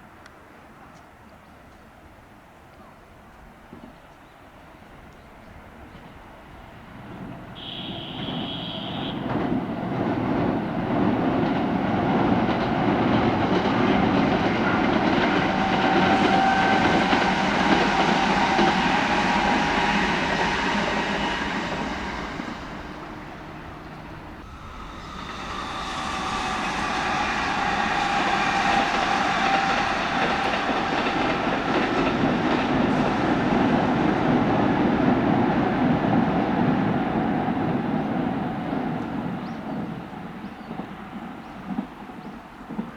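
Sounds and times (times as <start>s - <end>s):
electric train passing: 5.6s - 42.9s
train motor whine: 15.0s - 34.2s.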